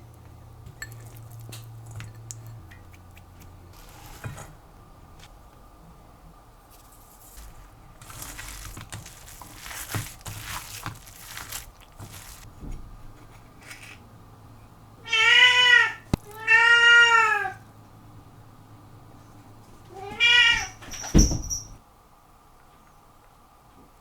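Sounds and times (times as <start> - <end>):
cat meowing: 15.0 - 17.6, 19.9 - 20.8.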